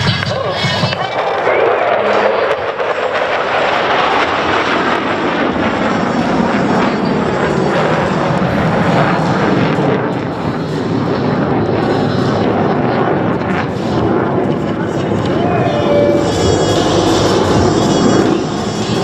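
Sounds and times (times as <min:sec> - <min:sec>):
fighter jets flying past: 0:13.6 - 0:19.0.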